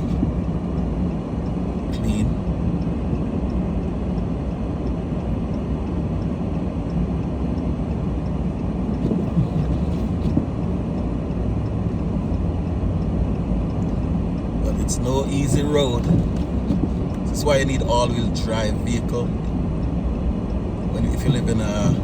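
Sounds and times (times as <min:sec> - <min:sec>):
tyre noise on snowy road: 0:00.0 - 0:02.6, 0:08.8 - 0:11.0
car engine rumble: 0:00.0 - 0:22.0.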